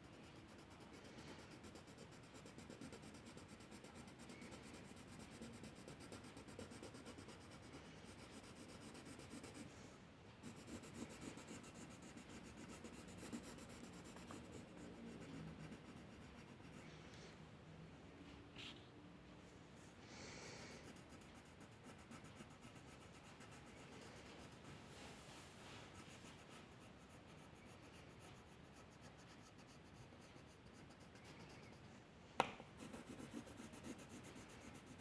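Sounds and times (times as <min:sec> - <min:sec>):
drawing tool scratching paper: 0:00.0 - 0:09.7, 0:10.4 - 0:16.8, 0:32.8 - 0:35.0.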